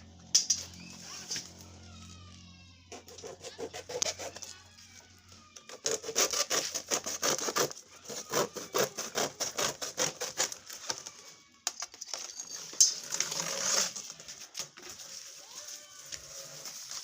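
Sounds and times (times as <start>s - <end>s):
hand saw cutting wood: 2.9s - 4.6s, 5.7s - 10.8s, 13.0s - 14.0s.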